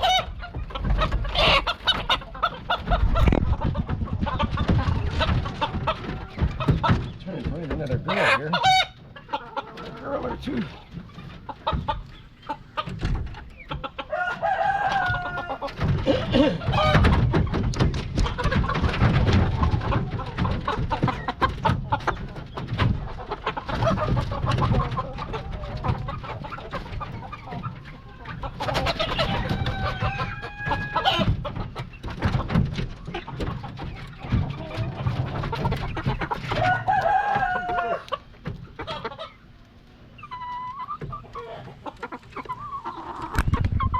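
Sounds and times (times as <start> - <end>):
chickens clucking and squawking: 0.0 - 43.9
rooster crowing: 14.1 - 16.5, 29.2 - 31.3, 36.6 - 38.1.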